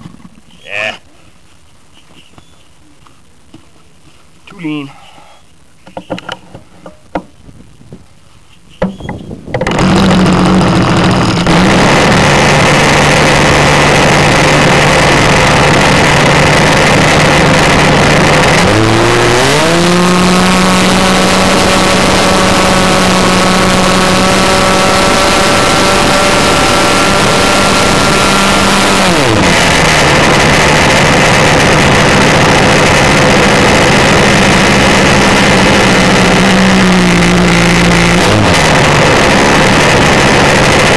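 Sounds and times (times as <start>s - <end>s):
model airplane engine buzzing: 9.6s - 40.9s.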